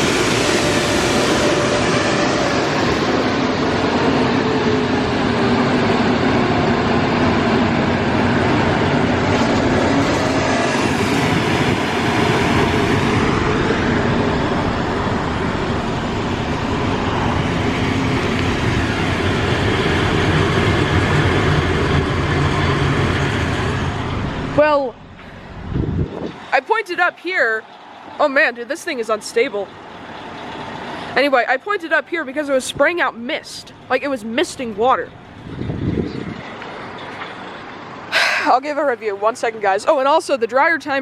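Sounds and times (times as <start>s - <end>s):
car wash dryer blowers: 0.0s - 30.9s.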